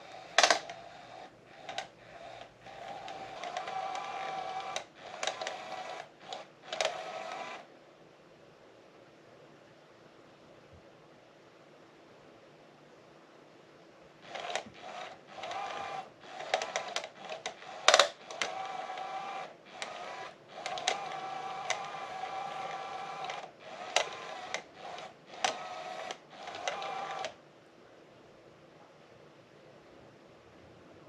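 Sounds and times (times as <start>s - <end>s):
small electric motor whirring: 0.0s - 7.7s, 14.2s - 27.4s
toy motor clicks: 0.0s - 7.7s, 14.2s - 27.4s.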